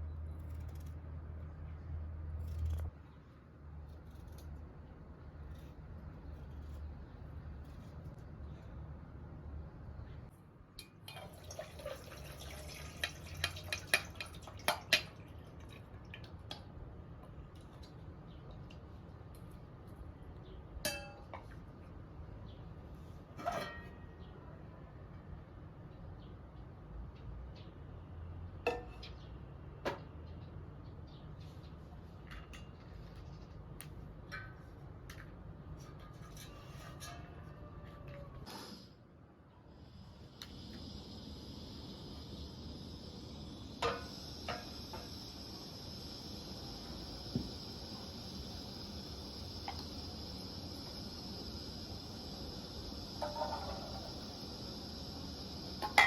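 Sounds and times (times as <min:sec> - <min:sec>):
water dripping: 0:10.8 - 0:16.7.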